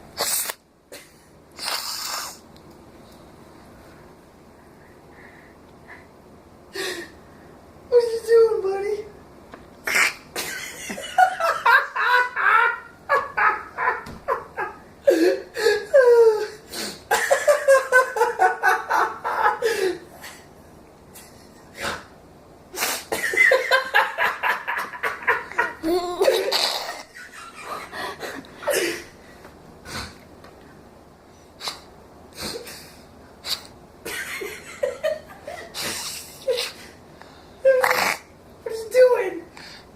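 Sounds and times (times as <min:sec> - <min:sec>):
nasal snorting: 0:01.6 - 0:02.4, 0:37.8 - 0:38.3
person laughing: 0:10.3 - 0:20.4, 0:23.1 - 0:29.1.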